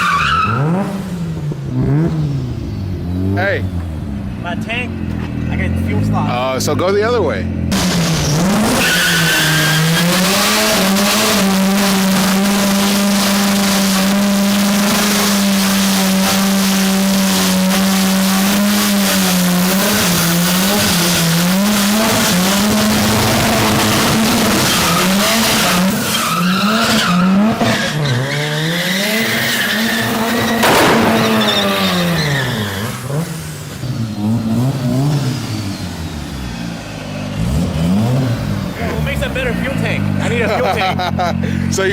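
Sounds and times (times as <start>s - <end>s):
car engine revving: 0.0s - 41.9s
tyres squealing: 8.6s - 10.4s, 21.7s - 34.4s.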